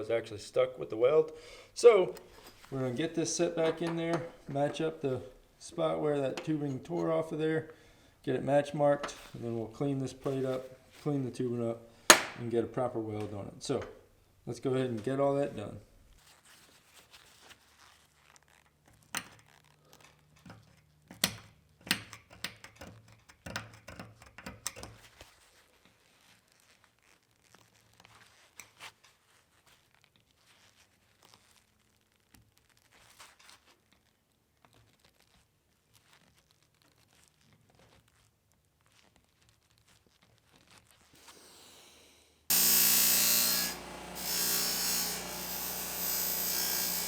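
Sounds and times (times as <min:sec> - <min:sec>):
rustling and scraping: 0:02.1 - 0:05.2, 0:09.0 - 0:11.1, 0:16.1 - 0:21.1, 0:24.8 - 0:41.4
metal tools knocking and clicking: 0:20.5 - 0:25.0.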